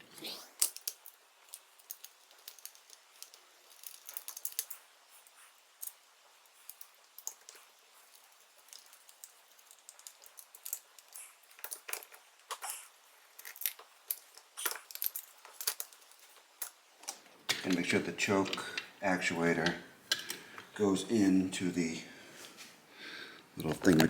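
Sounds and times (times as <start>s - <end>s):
small metal parts clicking: 0.6s - 4.9s, 5.7s - 18.9s.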